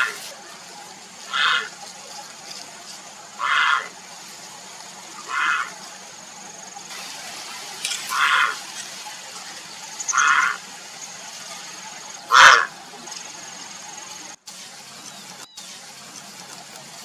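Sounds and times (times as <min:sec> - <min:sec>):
heron calls: 0:01.2 - 0:01.9, 0:03.3 - 0:04.1, 0:05.2 - 0:05.9, 0:08.1 - 0:08.6, 0:10.0 - 0:10.7, 0:12.2 - 0:12.8.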